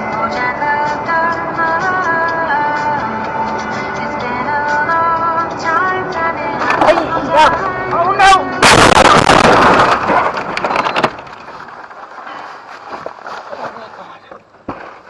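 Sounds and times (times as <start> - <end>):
music playing: 0.0 - 9.3
loud vehicle crash: 8.6 - 12.1.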